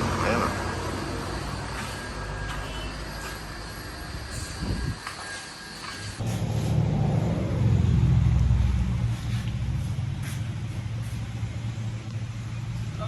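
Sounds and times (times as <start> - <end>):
car engine starting and idling: 6.2 - 13.0.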